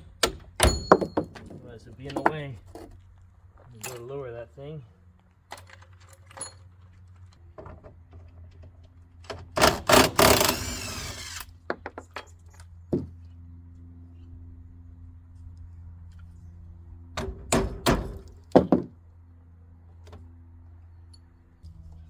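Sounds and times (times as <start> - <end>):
metal tool clinks and knocks: 0.6 - 2.5, 5.6 - 6.8
steady low hum: 9.0 - 22.0.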